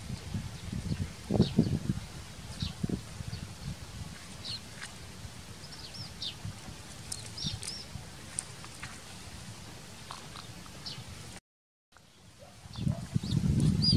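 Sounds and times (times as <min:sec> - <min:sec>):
low outdoor rumble: 0:00.0 - 0:11.4
small birds chirping: 0:02.5 - 0:09.2, 0:10.0 - 0:11.2, 0:12.0 - 0:13.9.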